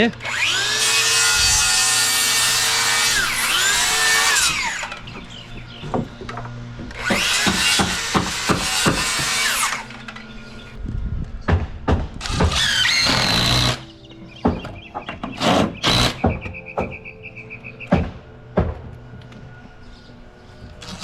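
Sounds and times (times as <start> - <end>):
wood creaking: 1.0 - 21.0
nails squealing: 12.2 - 18.1.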